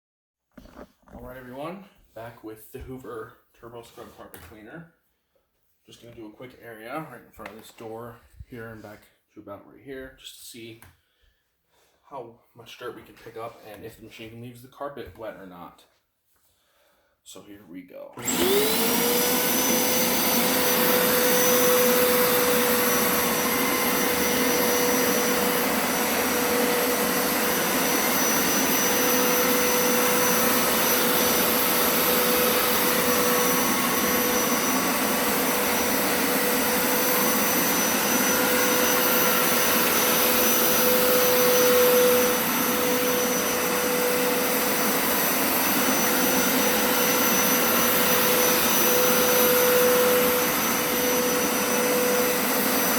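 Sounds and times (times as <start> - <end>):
carpet cleaner motor whining: 18.2 - 52.9.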